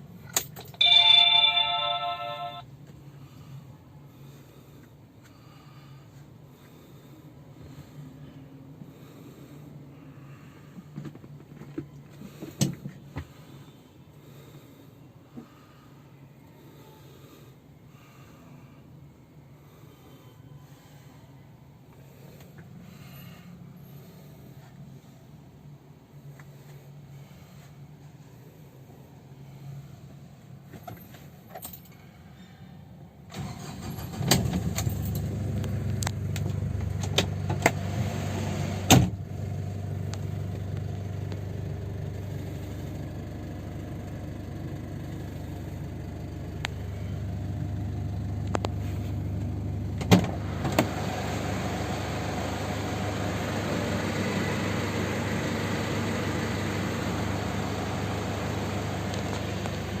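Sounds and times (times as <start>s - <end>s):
diesel engine starting and idling: 33.2s - 60.0s.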